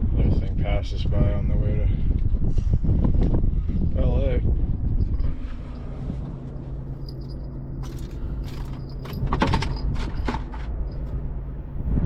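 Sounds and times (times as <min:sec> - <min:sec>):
low engine hum: 0:00.0 - 0:12.0
metallic clinks and rattles: 0:06.7 - 0:11.2.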